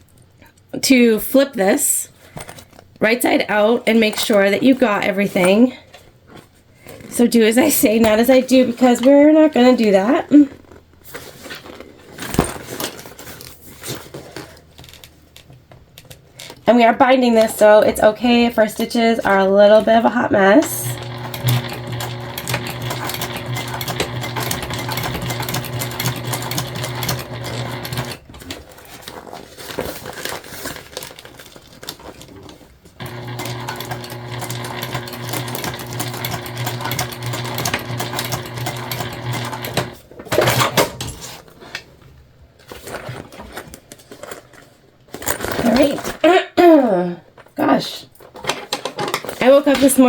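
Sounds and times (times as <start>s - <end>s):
sewing machine stitching: 20.5s - 28.4s, 33.0s - 40.8s.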